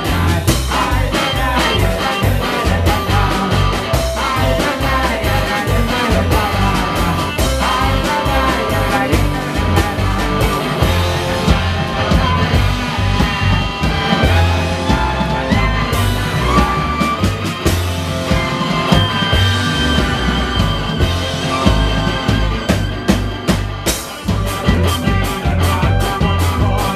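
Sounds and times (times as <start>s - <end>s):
accordion: 0.0s - 26.9s
double bass: 0.0s - 26.9s
drums: 0.0s - 26.9s
clarinet: 13.2s - 26.9s.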